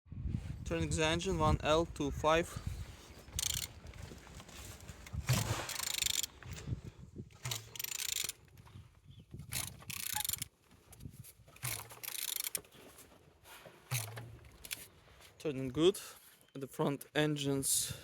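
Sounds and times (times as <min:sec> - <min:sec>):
engine turned over by hand clicking: 0:03.3 - 0:06.6, 0:07.3 - 0:08.8, 0:09.4 - 0:12.8, 0:13.9 - 0:14.9.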